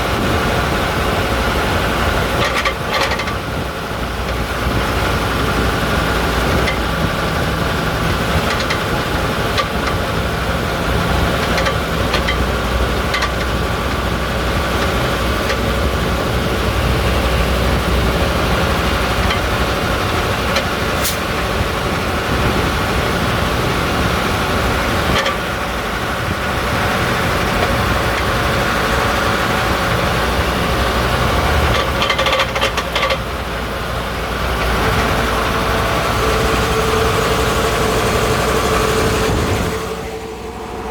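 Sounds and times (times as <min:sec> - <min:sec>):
bus engine running: 0:00.0 - 0:40.9
clicking rattles: 0:02.1 - 0:21.3, 0:30.0 - 0:33.3.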